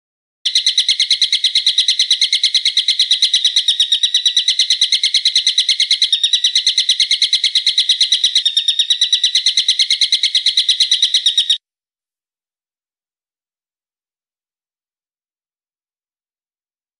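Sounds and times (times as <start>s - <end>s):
songbird trilling: 0.5s - 11.6s.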